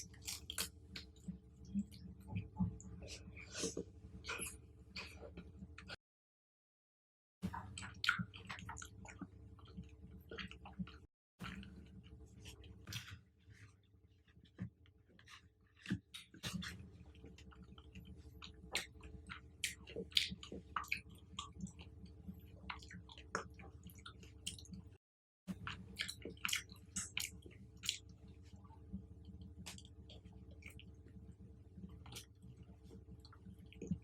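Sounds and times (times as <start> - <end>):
chewing fruit: 0.0 - 6.0, 15.2 - 24.9, 25.5 - 34.0.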